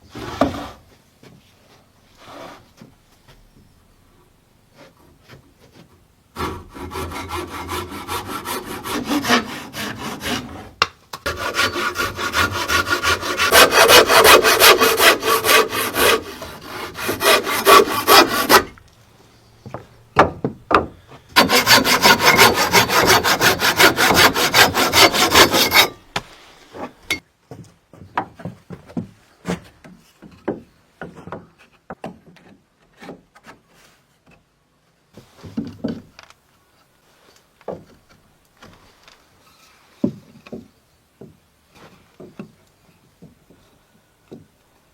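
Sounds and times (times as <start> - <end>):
hand saw cutting wood: 6.4 - 18.8, 21.4 - 26.1.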